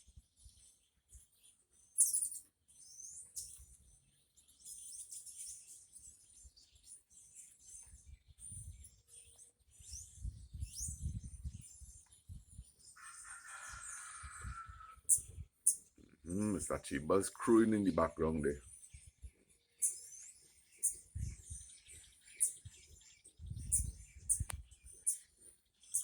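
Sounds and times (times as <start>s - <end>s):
small birds chirping: 0.0s - 26.0s
rooster crowing: 13.0s - 15.0s.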